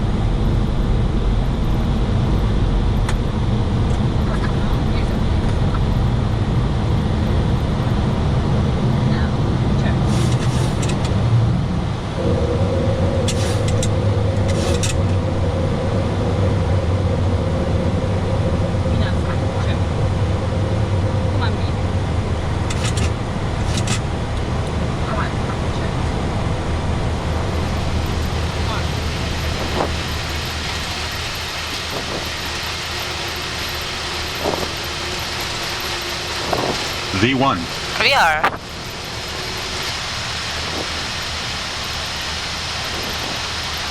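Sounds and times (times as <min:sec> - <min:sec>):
aircraft low rumble: 0:00.0 - 0:43.9
constant hum: 0:00.0 - 0:43.9
jet engines at takeoff thrust: 0:00.0 - 0:43.9.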